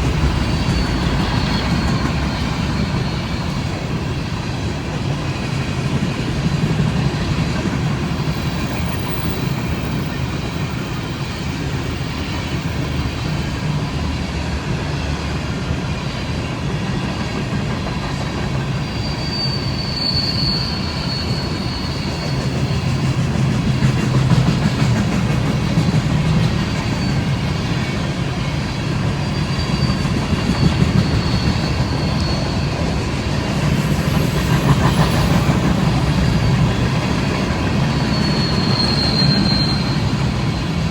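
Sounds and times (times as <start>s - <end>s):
high wheel squeal: 0.0s - 4.4s, 7.0s - 14.2s, 18.6s - 40.9s
freight train wheels rumbling on rail: 0.0s - 40.9s
clacking at rail joints: 21.2s - 40.5s.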